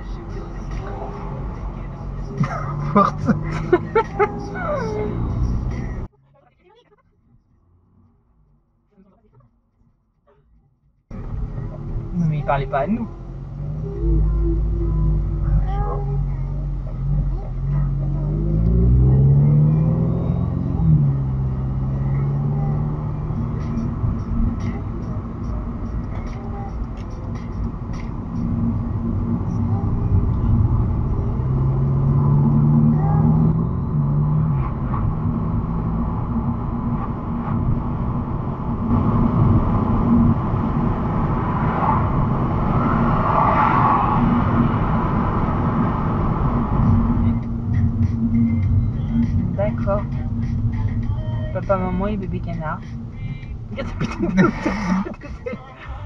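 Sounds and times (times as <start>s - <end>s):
car engine accelerating: 0.0s - 9.5s, 11.1s - 56.0s
tyre and road noise: 0.0s - 56.0s.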